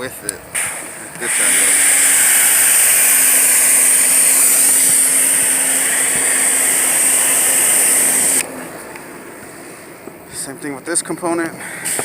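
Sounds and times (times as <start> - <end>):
pressure washer jet hissing: 0.6 - 8.5.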